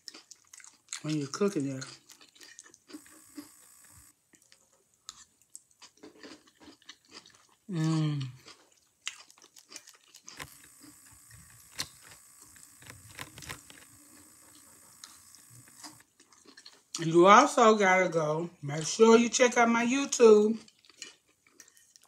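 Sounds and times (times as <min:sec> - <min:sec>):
close-up crunchy chewing: 0:00.0 - 0:17.2, 0:20.4 - 0:22.0
person humming mmm: 0:07.7 - 0:08.4.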